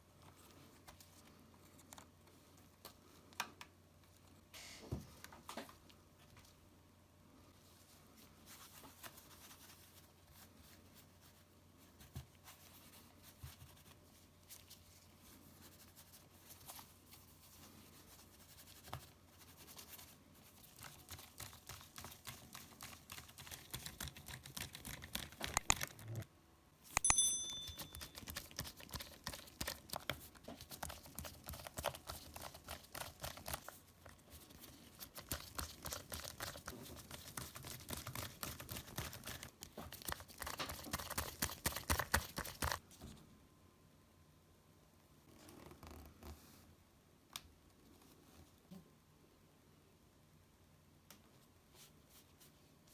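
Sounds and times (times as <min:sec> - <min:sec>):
brief metallic ring: 0:26.9 - 0:28.1.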